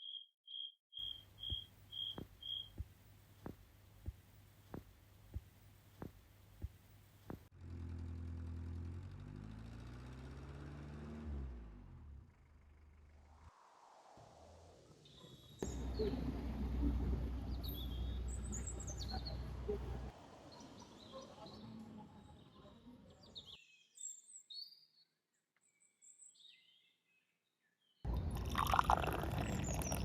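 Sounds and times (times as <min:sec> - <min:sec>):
cricket chirping: 0:00.0 - 0:02.8
vehicle engine rumble passing: 0:07.5 - 0:13.5, 0:15.6 - 0:20.8
low hum: 0:12.2 - 0:20.1.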